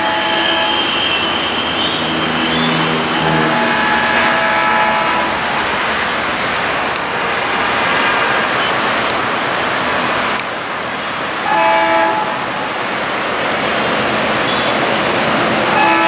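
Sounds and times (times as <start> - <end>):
train horn blast: 0.0 - 5.5, 11.4 - 12.5, 15.7 - 16.0
diesel locomotive engine roar: 0.0 - 16.0.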